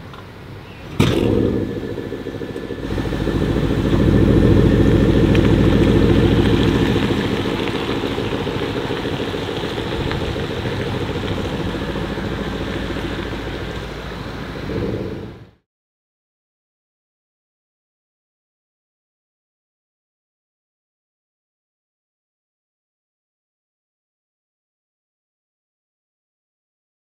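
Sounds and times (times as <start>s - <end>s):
car engine idling: 0.4s - 15.6s.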